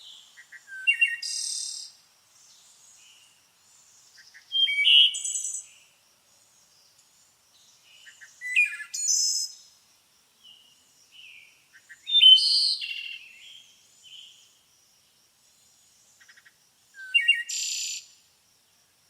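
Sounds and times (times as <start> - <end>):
songbird singing: 0.0 - 19.0.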